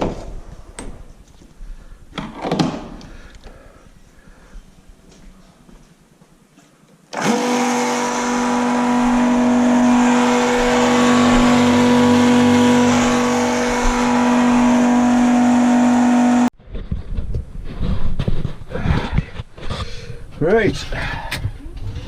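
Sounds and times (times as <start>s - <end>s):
electric fuel pump humming: 7.2s - 16.5s.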